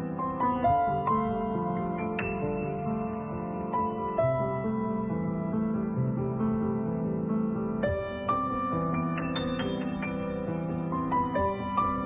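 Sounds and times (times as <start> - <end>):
soft piano background music: 0.0 - 12.0.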